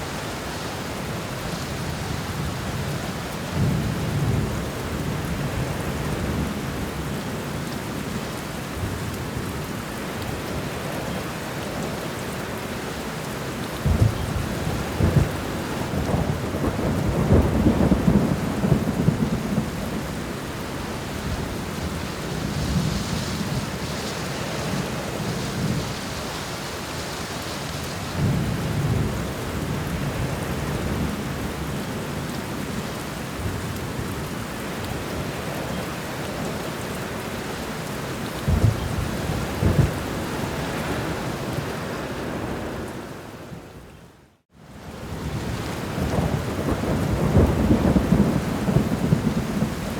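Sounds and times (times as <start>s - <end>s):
steady rain: 0.0s - 49.9s
thunder rumbling: 13.8s - 27.0s, 38.4s - 43.3s, 45.0s - 49.9s
sharp thunder claps: 46.0s - 49.9s.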